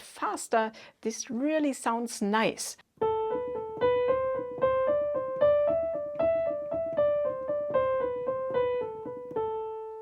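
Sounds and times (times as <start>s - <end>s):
piano finger exercise: 3.0s - 10.0s.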